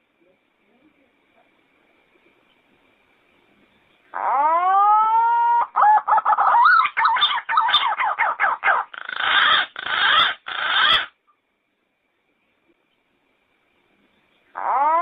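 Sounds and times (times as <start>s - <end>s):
pigeon singing: 4.1s - 11.1s, 14.5s - 15.0s.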